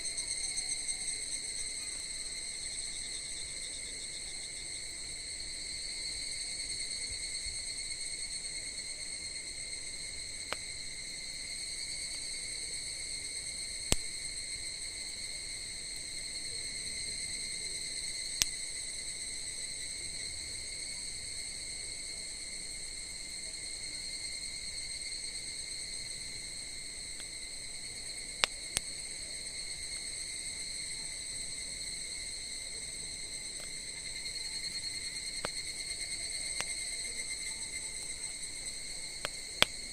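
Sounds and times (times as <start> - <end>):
crickets trilling: 0.0 - 39.9
campfire popping: 13.6 - 15.3, 26.7 - 29.4, 33.1 - 39.9.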